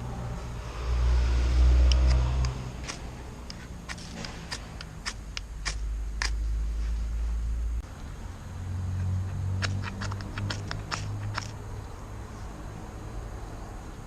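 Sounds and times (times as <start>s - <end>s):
low steady rumble: 0.0s - 12.5s
campfire wood crackling: 2.0s - 6.6s, 9.0s - 11.6s.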